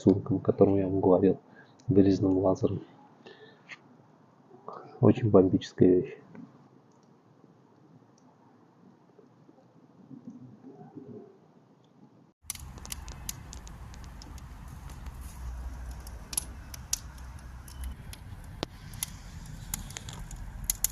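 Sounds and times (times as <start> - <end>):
wood fire crackling: 12.4 - 20.9.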